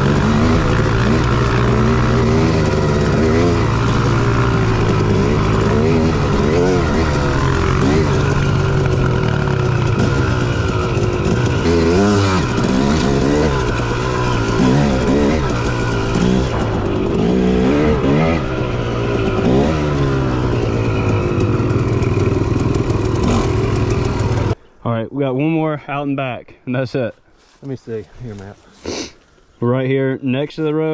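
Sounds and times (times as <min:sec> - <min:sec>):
dirt bike engine revving: 0:00.0 - 0:24.6.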